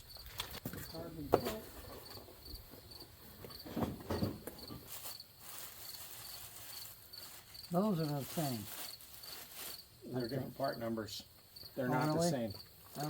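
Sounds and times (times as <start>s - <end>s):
cricket chirping: 0.0s - 13.0s
knocks and clatter: 3.4s - 4.9s.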